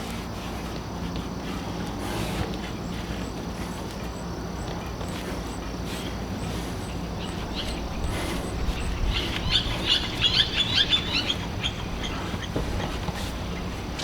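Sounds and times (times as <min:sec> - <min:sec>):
small bird chirping: 0:06.4 - 0:13.7.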